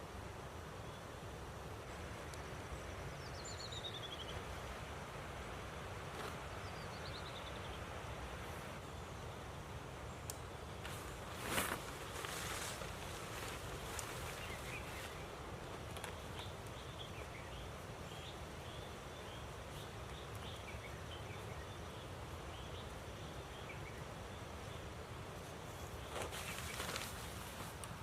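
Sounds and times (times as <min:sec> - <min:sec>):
rustling or clattering: 0:10.8 - 0:15.1, 0:26.1 - 0:28.0.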